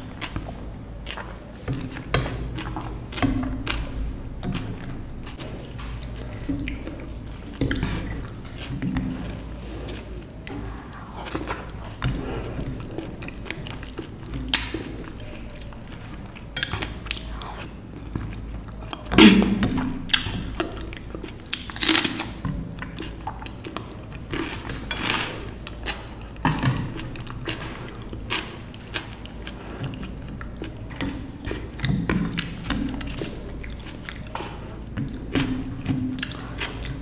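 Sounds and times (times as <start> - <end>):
person chewing food: 0.0 - 37.0.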